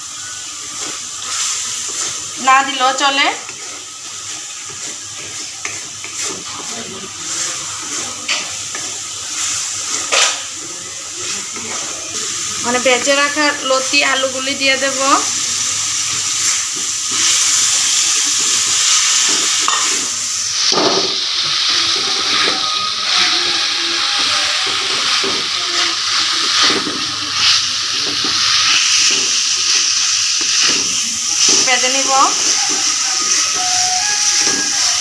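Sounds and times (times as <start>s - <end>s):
food sizzling in hot oil: 0.0s - 35.0s
spatula scraping and knocking pan: 0.8s - 10.4s, 30.4s - 35.0s.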